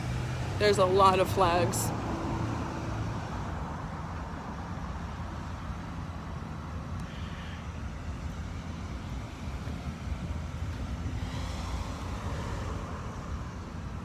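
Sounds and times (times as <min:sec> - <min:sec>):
traffic driving past: 0:00.0 - 0:14.0.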